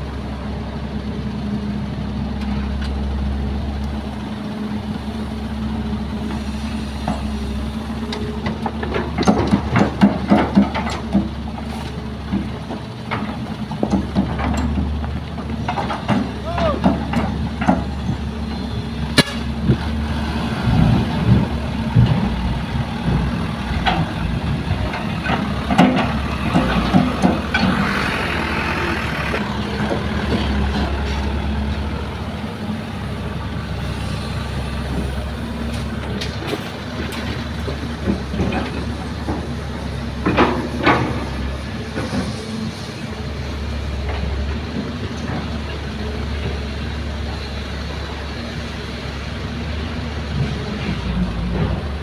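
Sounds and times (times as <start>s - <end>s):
heavy diesel engines running: 0.0s - 52.0s
sharp metallic knocks: 19.2s - 19.5s.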